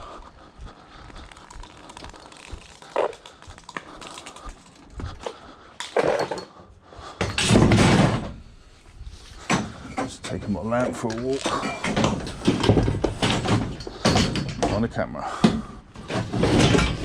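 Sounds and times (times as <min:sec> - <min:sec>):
scrap knocking and clattering: 0:09.4 - 0:14.8, 0:15.4 - 0:17.0
scrap crashing and scraping: 0:16.0 - 0:17.0.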